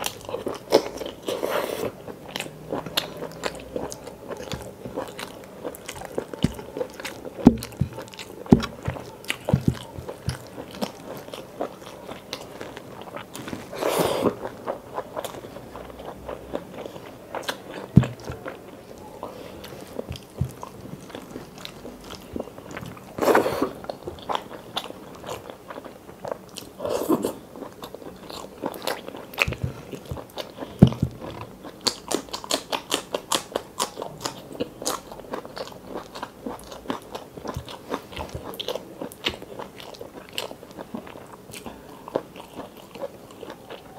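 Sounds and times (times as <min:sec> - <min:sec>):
food crunching: 0:00.0 - 0:43.9.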